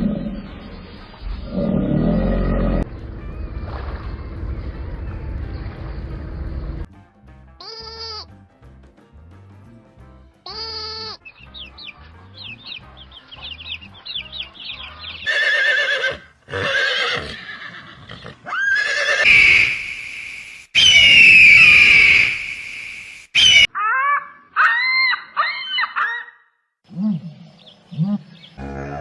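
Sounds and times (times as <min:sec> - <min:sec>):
background music: 0:00.0 - 0:16.8
animal bleat: 0:07.6 - 0:08.3, 0:10.5 - 0:11.2
loud harsh animal calls: 0:15.2 - 0:20.2, 0:20.8 - 0:26.4.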